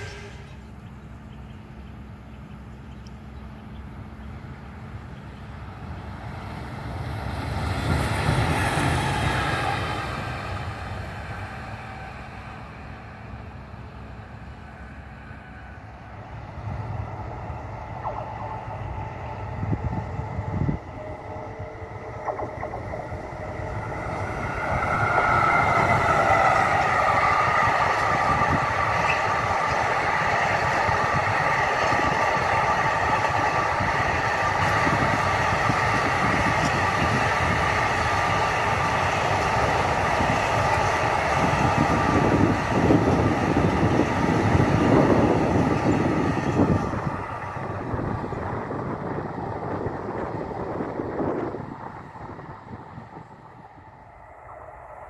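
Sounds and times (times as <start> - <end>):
electric locomotive passing: 0.0 - 55.0
freight train wheels rumbling on rails: 0.0 - 55.0
high whine: 15.8 - 31.3.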